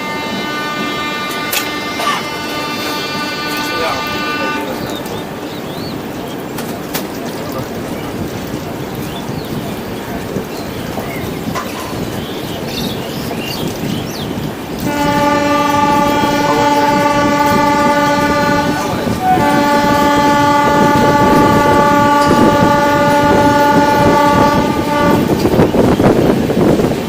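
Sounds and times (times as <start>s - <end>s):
train horn blasts: 0.0s - 5.4s, 14.8s - 26.6s
moving train noise: 0.0s - 27.0s.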